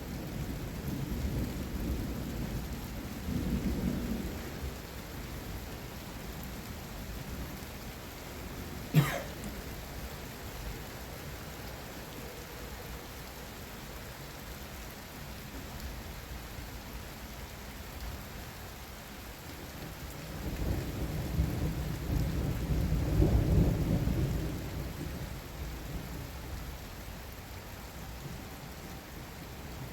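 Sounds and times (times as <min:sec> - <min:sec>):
steady rain: 0:00.0 - 0:29.9
rolling thunder rumble: 0:20.4 - 0:25.4.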